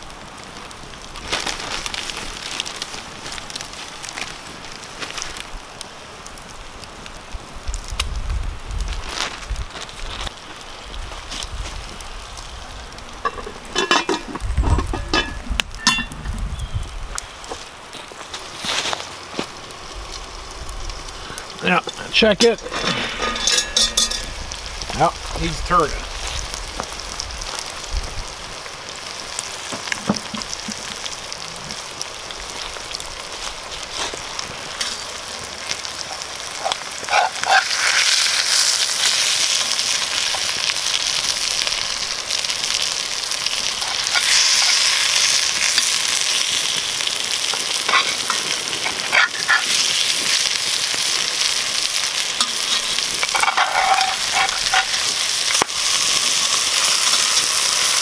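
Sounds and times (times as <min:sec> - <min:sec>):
fish sizzling in oil: 0:00.0 - 0:58.0
metal spatula scraping pan: 0:22.5 - 0:24.4, 0:47.9 - 0:49.8, 0:52.4 - 0:55.1.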